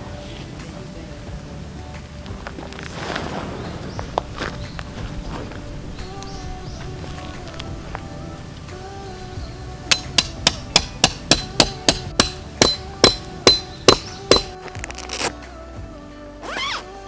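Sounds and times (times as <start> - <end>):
background music: 0.0 - 17.0
hammer striking metal peg: 9.9 - 14.6.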